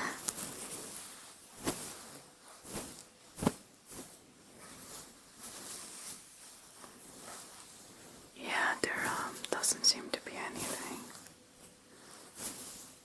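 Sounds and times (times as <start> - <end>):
hair rustling: 8.8 - 13.0.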